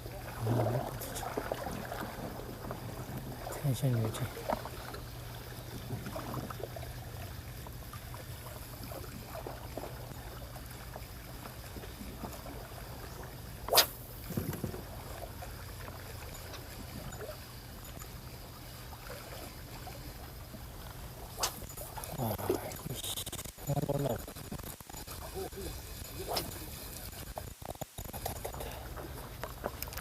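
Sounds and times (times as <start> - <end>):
steady low hum: 0.0 - 30.0
sharp click: 21.4 - 21.7.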